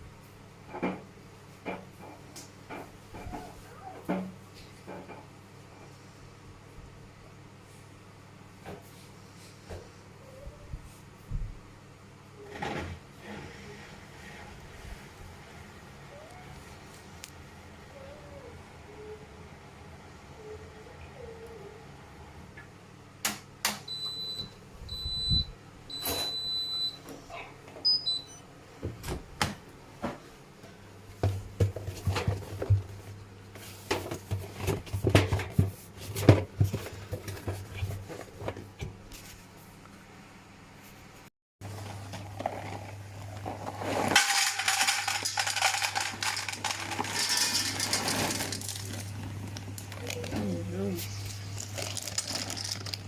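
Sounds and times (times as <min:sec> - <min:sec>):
washing machine beeping: 0:23.8 - 0:27.1, 0:27.8 - 0:28.5
packaging crinkling and rustling: 0:41.6 - 0:53.0.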